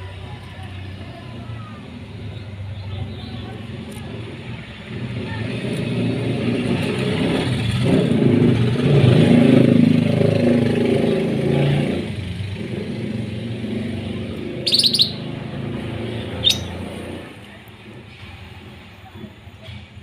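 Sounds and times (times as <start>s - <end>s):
motor vehicle passing: 0.0s - 18.8s
high bird chirps: 14.5s - 15.5s, 16.2s - 16.9s.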